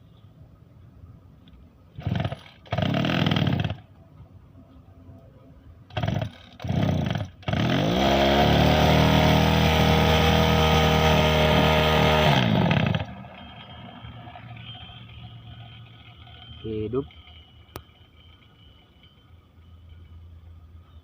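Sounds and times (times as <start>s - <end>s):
brush cutter engine starting and revving: 2.0s - 3.9s, 5.9s - 13.2s.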